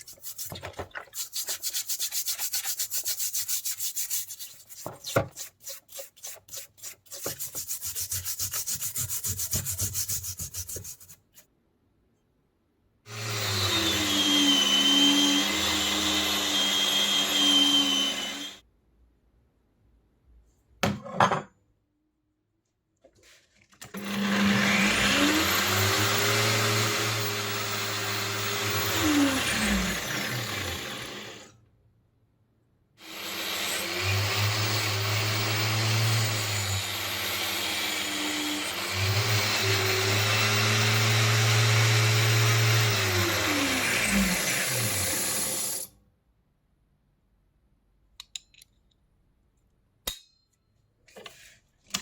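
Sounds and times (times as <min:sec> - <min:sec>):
electric power tool motor: 0:13.1 - 0:18.6, 0:24.0 - 0:31.5.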